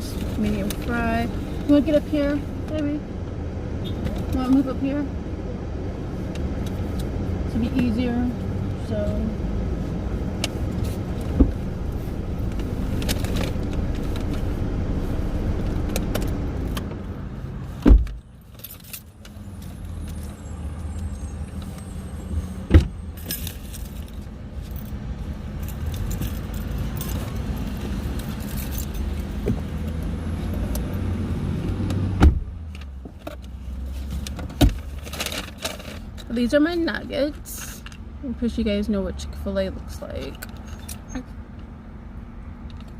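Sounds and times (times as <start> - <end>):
low rumble inside car: 0.0 - 42.9
rattling and handling noises: 10.3 - 14.6, 15.6 - 22.0, 23.1 - 30.8, 32.6 - 38.0, 40.0 - 41.7.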